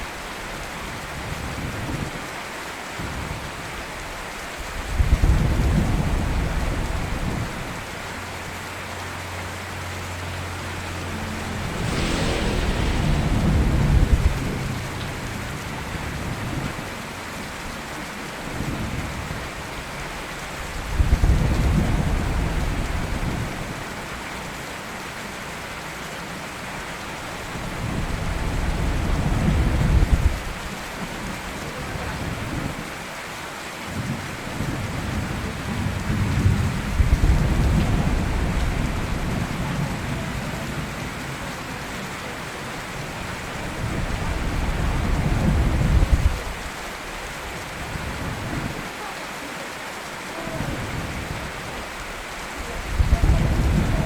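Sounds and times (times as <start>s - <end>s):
heavy rain: 0.0s - 54.0s
thunder rumbling: 4.7s - 32.9s, 33.9s - 48.9s, 50.5s - 54.0s.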